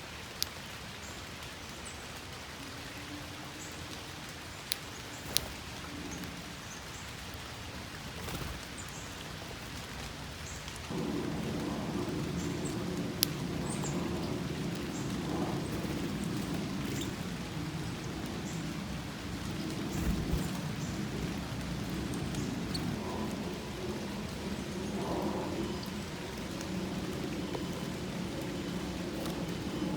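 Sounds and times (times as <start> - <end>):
rain falling: 0.0 - 29.9
low rumbling: 10.9 - 29.9.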